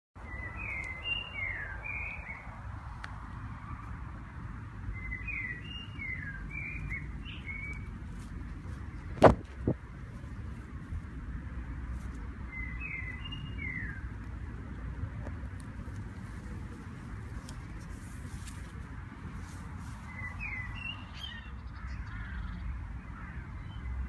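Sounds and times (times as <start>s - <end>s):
songbird singing whistled notes: 0.2s - 2.5s, 4.9s - 7.9s, 12.5s - 14.1s, 20.0s - 22.6s.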